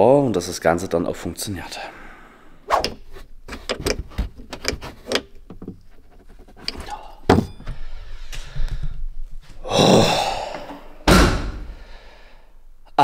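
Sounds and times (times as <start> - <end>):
clicks and knocks of handling: 2.8 - 7.7
loud thunk: 11.0 - 11.8.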